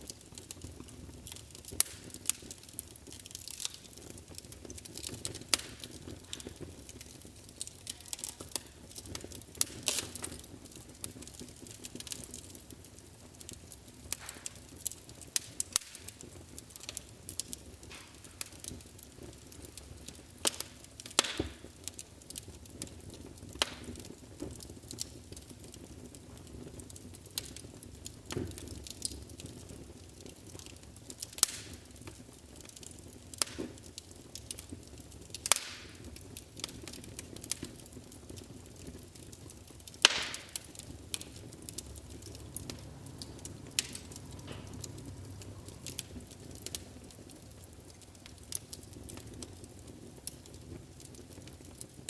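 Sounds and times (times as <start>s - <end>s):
fire crackling and popping: 0.0s - 52.0s
fire hissing: 0.0s - 52.0s.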